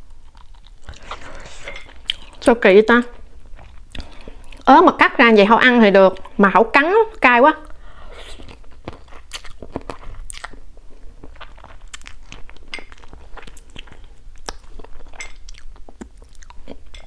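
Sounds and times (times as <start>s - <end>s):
person chewing and biting food: 0.0s - 2.4s, 3.3s - 4.7s, 8.2s - 17.0s.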